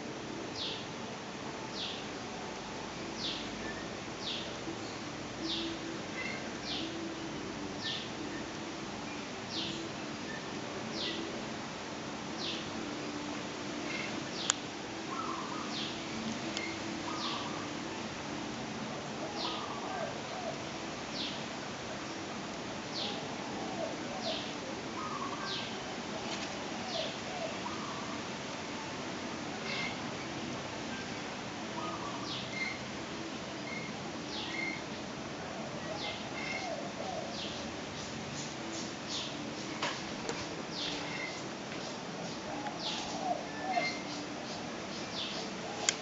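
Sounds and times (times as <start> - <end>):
bird chirping: 16.6 - 17.6
bird warbling: 25.0 - 25.7.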